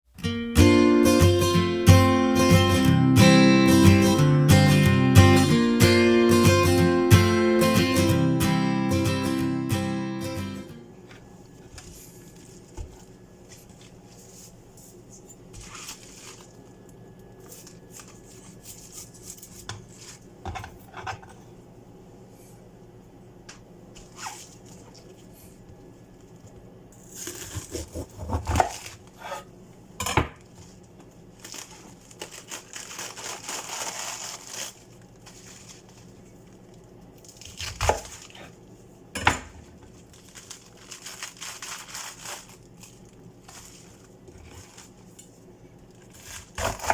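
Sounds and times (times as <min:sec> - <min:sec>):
faint steady hum: 0:00.2 - 0:46.9
crinkling and rustling: 0:11.1 - 0:21.1, 0:30.4 - 0:38.6, 0:39.7 - 0:46.8.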